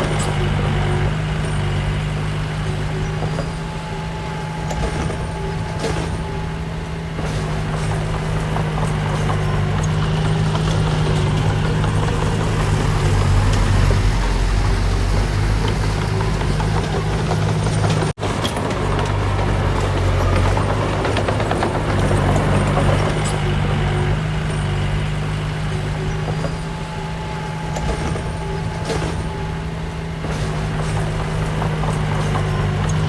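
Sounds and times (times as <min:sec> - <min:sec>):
heavy diesel engine running: 0:00.0 - 0:33.0.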